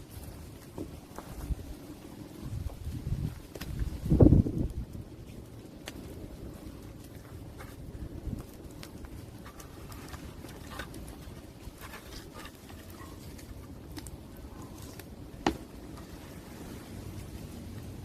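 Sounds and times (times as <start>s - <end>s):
open fire crackling: 0.0s - 18.0s.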